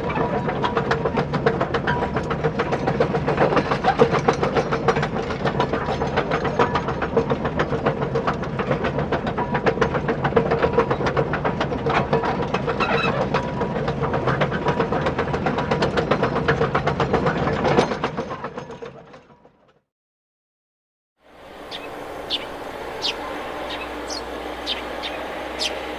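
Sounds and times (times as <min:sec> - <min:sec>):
toy motor and gear hum: 0:21.5 - 0:25.9.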